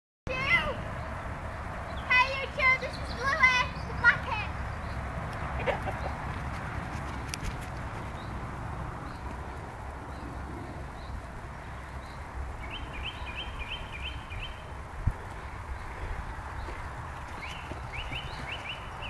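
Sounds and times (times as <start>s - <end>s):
bird singing: 0.8s - 5.1s, 10.0s - 19.0s.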